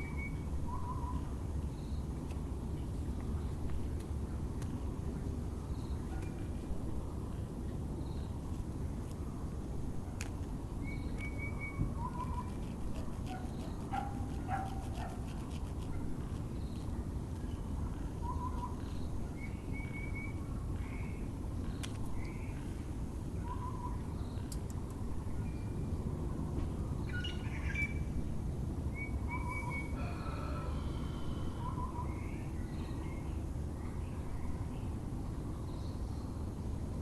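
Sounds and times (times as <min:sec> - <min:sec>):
low hum of background noise: 0:00.0 - 0:37.0
birds calling: 0:10.8 - 0:15.4
dog barking in the distance: 0:13.0 - 0:15.3.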